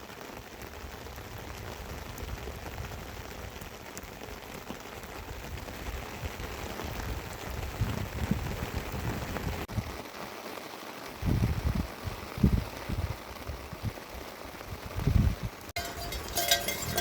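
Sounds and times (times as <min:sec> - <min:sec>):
raindrop ticks: 0:00.0 - 0:08.0, 0:15.6 - 0:17.0
steady rain hiss: 0:00.0 - 0:17.0.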